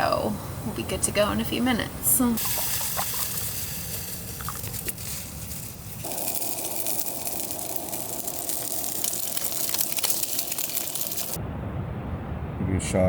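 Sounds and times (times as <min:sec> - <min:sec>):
food sizzling in a pan: 0:02.4 - 0:11.4.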